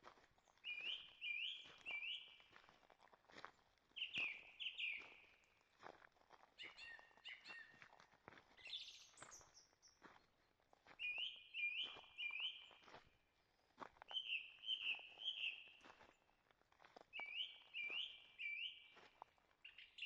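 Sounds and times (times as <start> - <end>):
footsteps on forest trail: 0.0 - 20.0
songbirds calling: 0.6 - 2.5, 4.0 - 5.4, 6.6 - 7.8, 8.6 - 10.0, 11.0 - 12.9, 14.1 - 16.0, 17.2 - 19.0, 19.6 - 20.0.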